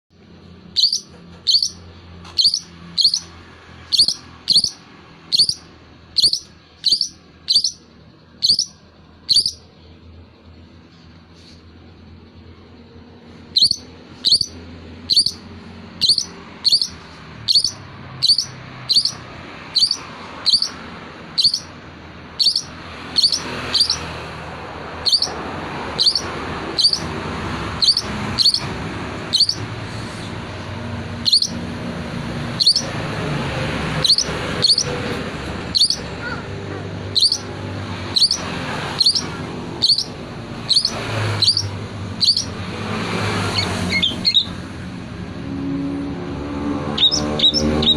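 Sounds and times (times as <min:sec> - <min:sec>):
shrike calling: 0:00.6 - 0:09.7, 0:13.5 - 0:24.2, 0:24.8 - 0:30.2, 0:31.1 - 0:31.8, 0:32.4 - 0:33.2, 0:33.9 - 0:42.8, 0:43.5 - 0:44.6, 0:46.9 - 0:47.9.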